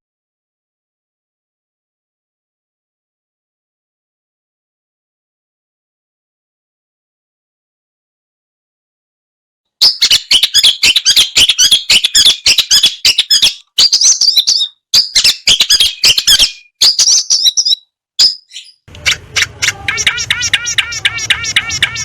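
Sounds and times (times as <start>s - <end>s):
songbird singing: 9.8s - 22.0s
evenly repeated notes: 18.9s - 22.0s.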